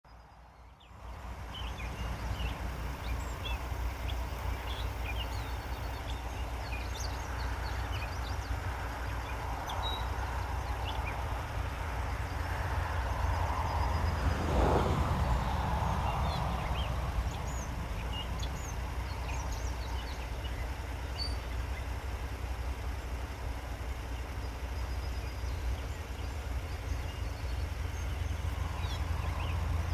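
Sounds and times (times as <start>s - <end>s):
birds chirping: 0.2s - 29.9s
steady low rumble: 1.0s - 23.9s, 25.2s - 29.9s.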